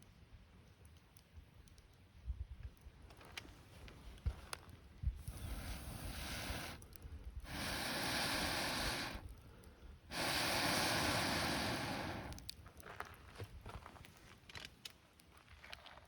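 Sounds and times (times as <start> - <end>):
person blowing breaths: 5.2 - 12.5.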